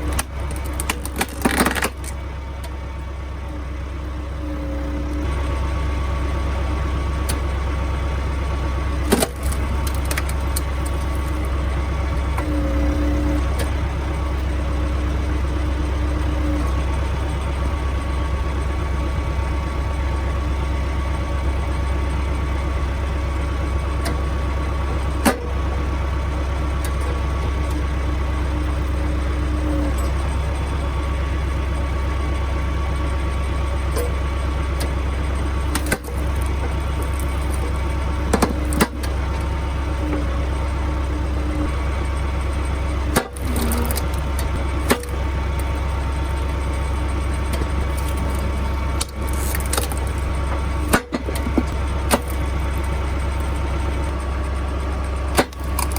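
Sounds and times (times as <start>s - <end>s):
wood cracking: 0.0s - 2.8s, 9.0s - 16.9s, 34.7s - 40.2s, 43.0s - 54.2s, 55.2s - 55.9s
tractor diesel engine running: 0.0s - 55.9s.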